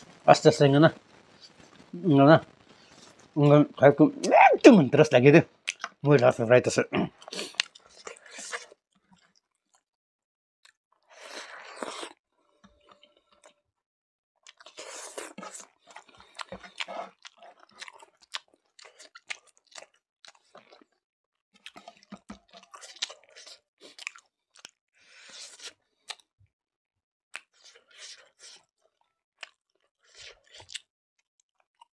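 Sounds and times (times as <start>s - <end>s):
person chewing with wet smacking: 5.6s - 6.0s, 7.1s - 9.9s, 14.4s - 21.0s, 21.6s - 26.3s, 27.3s - 31.9s.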